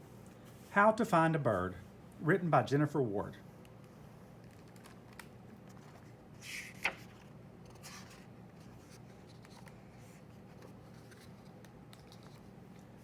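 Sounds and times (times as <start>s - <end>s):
low room hum: 0.0s - 13.0s
paper page rustling: 4.4s - 12.9s.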